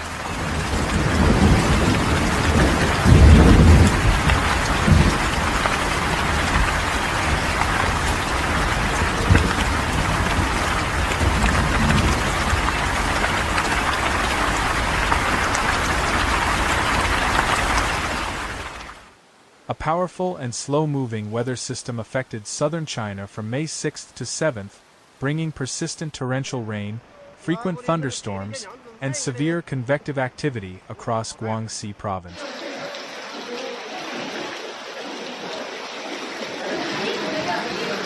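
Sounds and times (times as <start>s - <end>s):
thunder rumbling: 0.0s - 18.7s
heavy rain: 0.0s - 26.1s, 32.3s - 38.0s.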